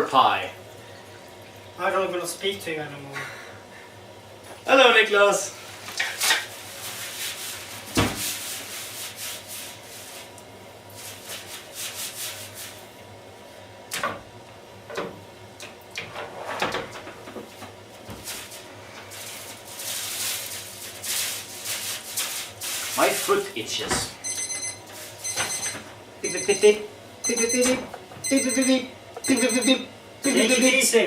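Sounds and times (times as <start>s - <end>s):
rubbing and scrubbing dishes: 18.2s - 23.5s.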